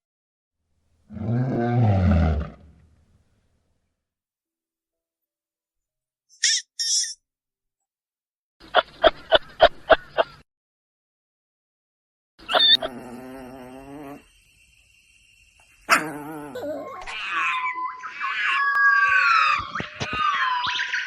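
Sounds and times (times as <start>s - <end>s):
animal calling: 12.4s - 14.3s, 15.9s - 21.0s
high whining cries: 15.8s - 21.0s.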